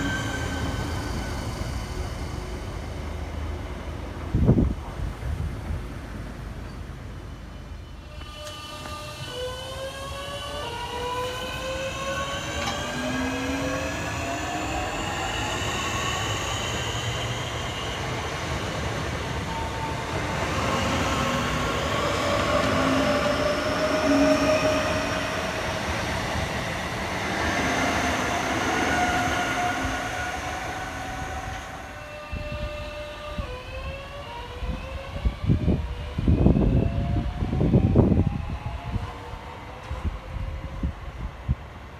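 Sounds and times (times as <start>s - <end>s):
wheel and rail rumble: 0.0s - 41.5s
train traction motors whining: 6.6s - 39.0s.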